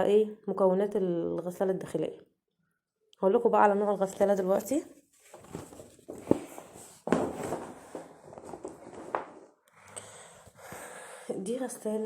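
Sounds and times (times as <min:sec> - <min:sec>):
rustling: 0:05.1 - 0:09.5.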